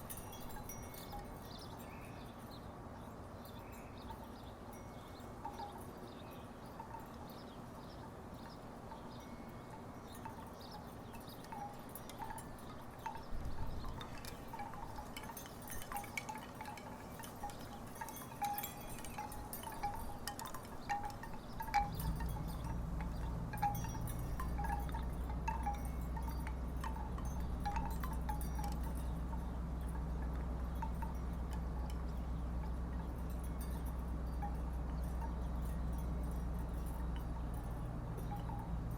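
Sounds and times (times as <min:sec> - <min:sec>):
wooden wind chimes knocking: 0:10.2 - 0:38.9
low steady rumble: 0:18.5 - 0:38.9.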